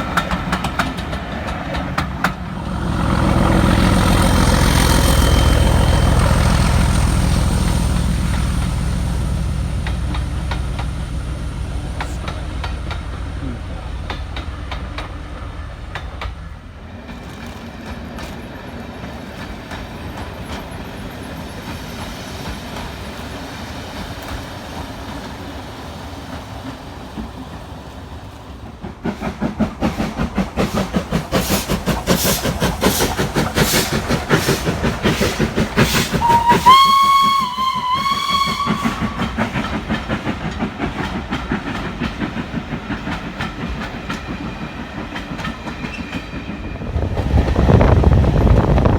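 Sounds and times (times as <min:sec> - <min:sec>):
train rumbling and clattering: 0:00.0 - 0:48.9
train whistle blast: 0:35.8 - 0:39.6.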